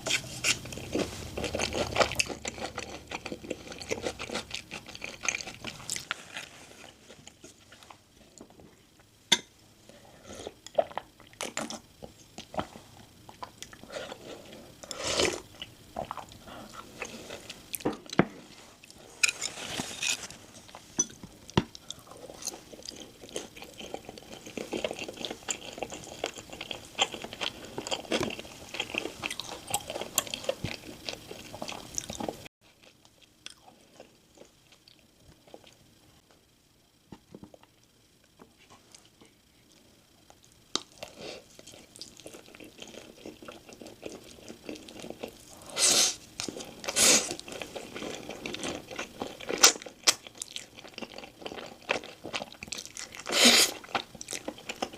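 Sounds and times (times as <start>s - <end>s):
person chewing and crunching food: 0.0s - 9.1s, 9.8s - 36.3s, 38.4s - 54.9s.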